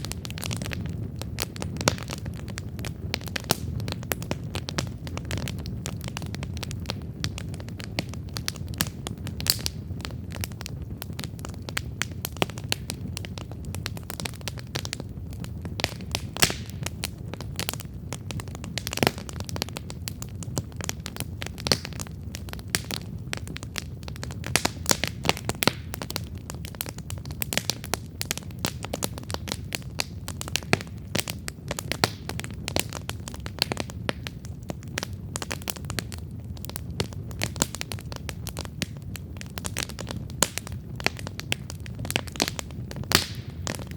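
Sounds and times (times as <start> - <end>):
campfire crackling and popping: 0.0 - 43.9
low rumble of flames: 0.0 - 43.9.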